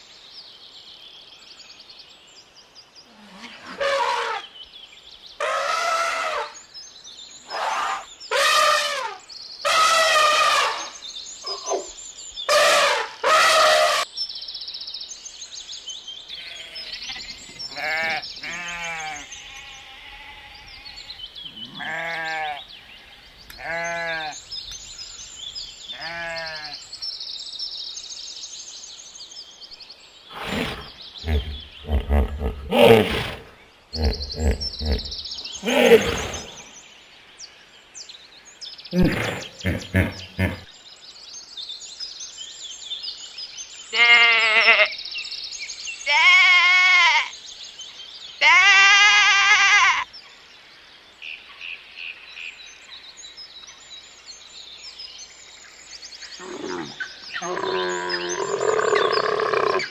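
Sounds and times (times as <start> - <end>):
birds chirping: 0.0 - 59.9
sheep bleating: 17.8 - 21.0, 21.6 - 22.6, 23.6 - 24.4, 26.0 - 26.8, 31.2 - 33.2, 34.0 - 36.4, 44.0 - 44.9, 46.1 - 47.3.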